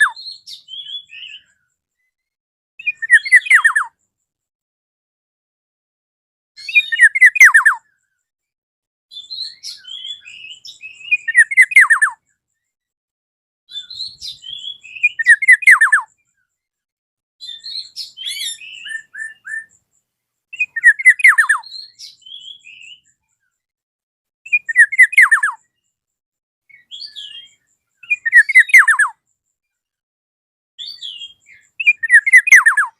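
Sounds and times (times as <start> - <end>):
bird calling: 13.8 - 16.0, 26.8 - 29.1, 30.8 - 32.9.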